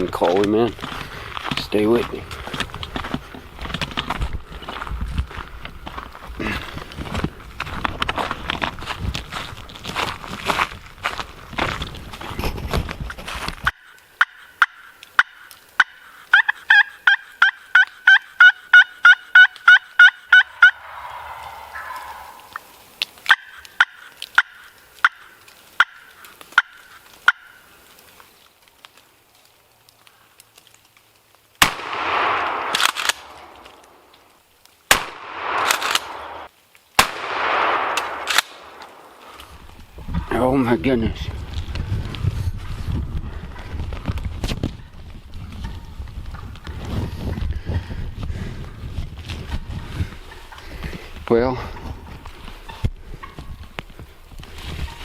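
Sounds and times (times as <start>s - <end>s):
turkey gobble: 13.7s - 22.7s, 23.3s - 27.6s
turkey yelping: 13.8s - 22.7s, 23.3s - 27.6s
shotgun blasts with echo: 31.6s - 33.6s, 34.9s - 39.1s.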